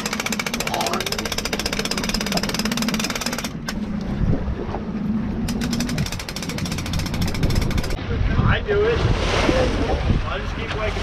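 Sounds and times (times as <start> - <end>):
motor pulsing: 0.0 - 8.0
steady low hum: 0.0 - 8.7.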